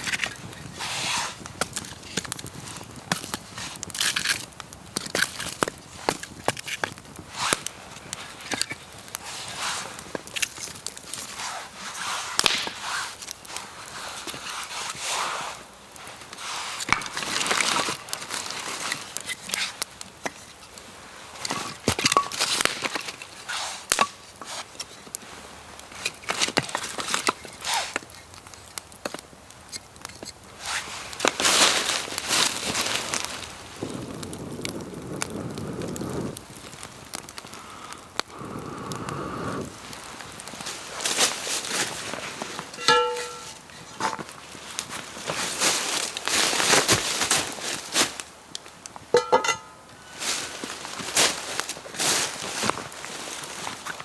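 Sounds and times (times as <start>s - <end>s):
dry wood cracking and rustling: 0.0s - 54.0s
wood snapping: 12.4s - 13.7s, 16.8s - 20.5s, 21.6s - 24.3s.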